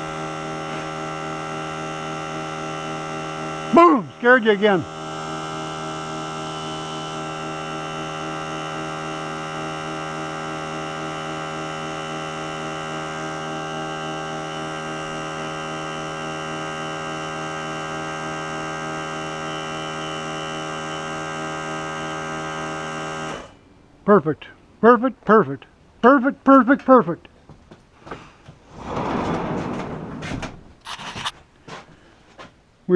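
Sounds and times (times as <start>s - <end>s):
electric air compressor running: 0.0s - 23.6s.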